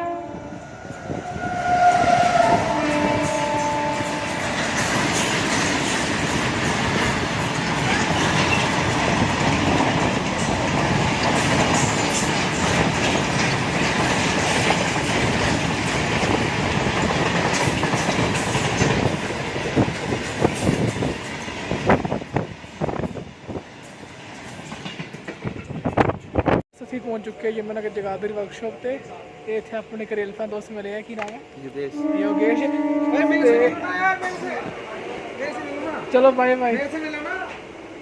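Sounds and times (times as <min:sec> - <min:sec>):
train horn: 0:00.0 - 0:05.3, 0:31.8 - 0:34.5
train wheels clattering on rails: 0:01.0 - 0:26.6.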